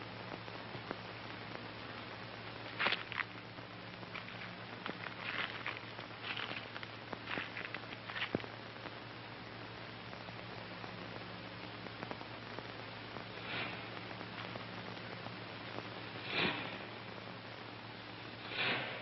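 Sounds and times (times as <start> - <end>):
film soundtrack hiss and hum: 0.0 - 19.0
soft breathy swishes: 13.4 - 14.0, 16.2 - 16.9, 18.4 - 19.0.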